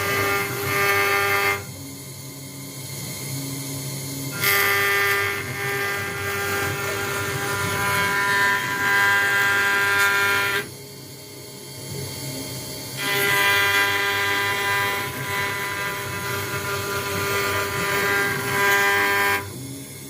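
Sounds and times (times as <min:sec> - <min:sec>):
router bit cutting acrylic: 0:00.0 - 0:01.7, 0:04.3 - 0:10.7, 0:13.0 - 0:19.6
machine humming: 0:00.0 - 0:20.0.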